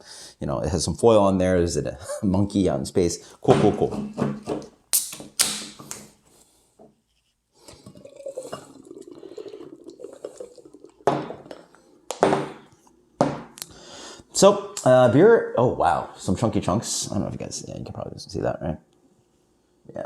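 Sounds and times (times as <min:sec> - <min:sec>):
beer pouring into a glass: 0:07.7 - 0:12.1.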